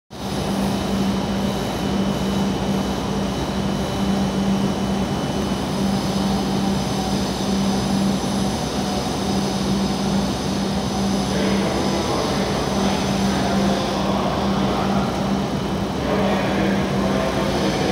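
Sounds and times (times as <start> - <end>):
train equipment mechanical drone: 0.1 - 17.9.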